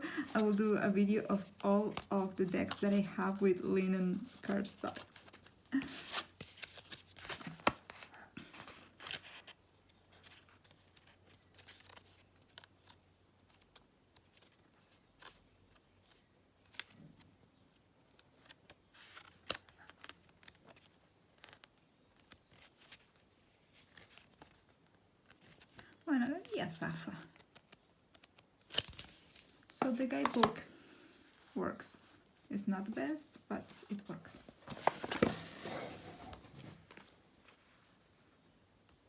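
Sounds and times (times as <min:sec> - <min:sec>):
paper cards rustling and tapping: 0:00.1 - 0:17.3, 0:18.0 - 0:30.7, 0:33.6 - 0:37.6
soft clicks of cards: 0:06.6 - 0:17.3, 0:18.0 - 0:26.0, 0:27.1 - 0:30.6.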